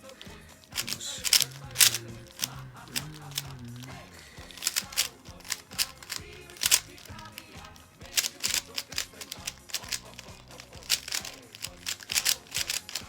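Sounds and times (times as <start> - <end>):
music playing: 0.0 - 13.0
puzzle cube clicking: 0.0 - 13.0.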